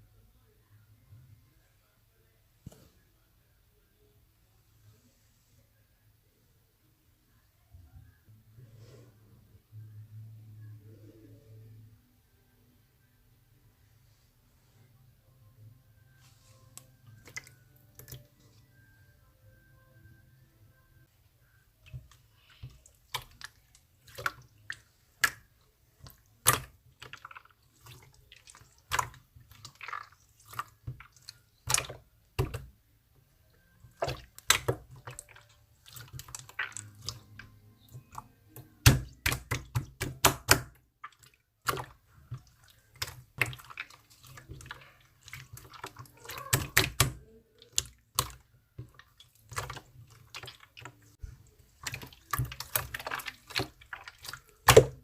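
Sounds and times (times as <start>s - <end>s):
wet clicks and squelches: 16.7s - 18.4s, 21.8s - 32.7s, 33.8s - 55.0s.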